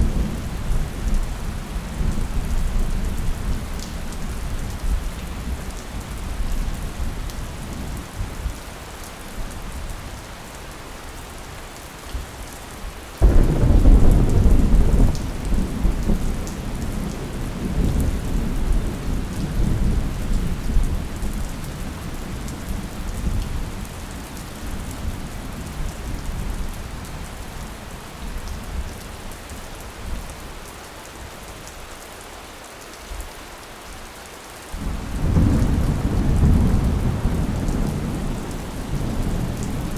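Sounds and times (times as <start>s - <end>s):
steady rain falling: 0.0s - 39.9s
thunder crack and rumble: 13.2s - 21.5s, 34.8s - 39.9s.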